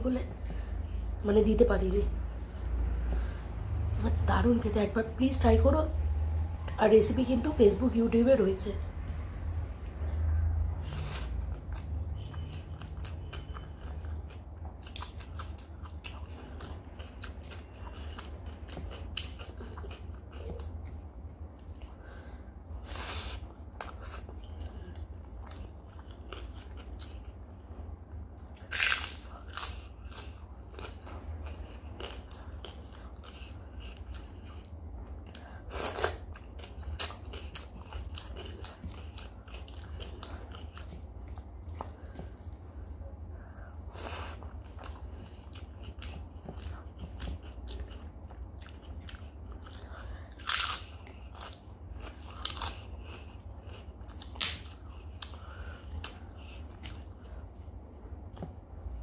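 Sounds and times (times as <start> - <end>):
steady low hum: 0.0 - 59.0
chewing food: 9.1 - 59.0
crunchy bites: 28.6 - 30.2, 50.4 - 51.5.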